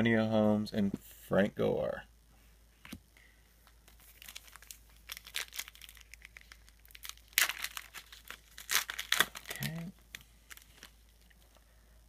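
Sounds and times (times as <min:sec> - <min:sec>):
card pack wrapper crinkling: 0:03.9 - 0:11.6.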